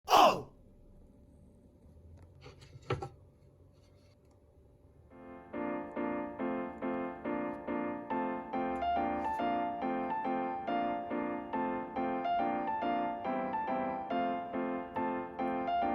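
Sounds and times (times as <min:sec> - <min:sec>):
piano chords: 0:05.0 - 0:15.9.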